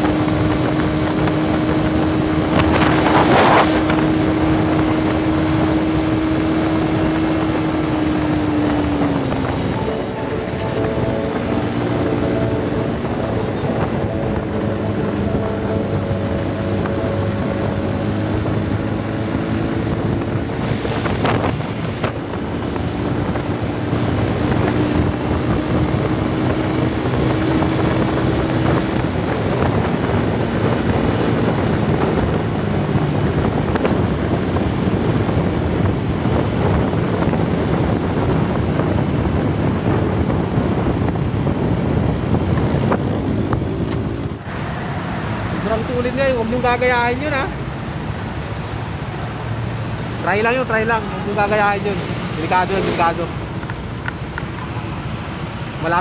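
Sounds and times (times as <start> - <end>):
motorcycle engine running: 0.0 - 44.6
wind rush on microphone: 0.0 - 56.0.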